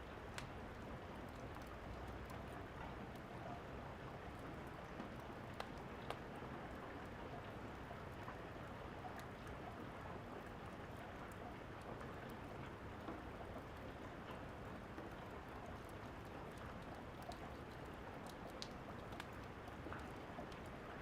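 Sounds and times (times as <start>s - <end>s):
wood fire crackling: 5.0s - 6.3s, 15.8s - 20.7s.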